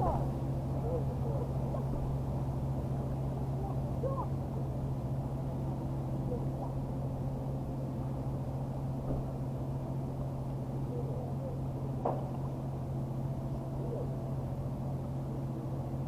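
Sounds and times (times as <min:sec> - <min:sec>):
faint distant voices: 0:00.0 - 0:07.6, 0:10.6 - 0:15.5
engine idling: 0:00.0 - 0:16.0.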